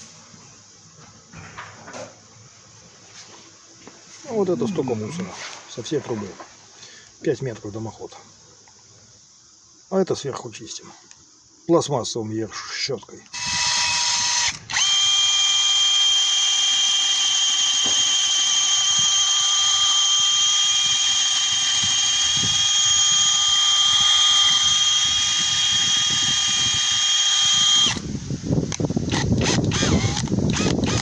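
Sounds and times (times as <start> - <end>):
power drill motor whine: 13.3 - 28.1, 28.7 - 31.0.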